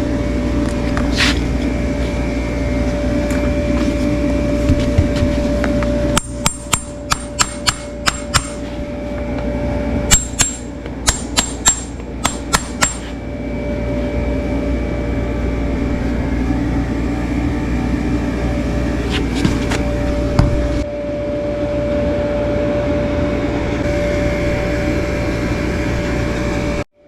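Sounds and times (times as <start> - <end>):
steady mechanical hum: 0.0 - 27.0
hammer tapping: 6.2 - 8.6, 10.1 - 13.0.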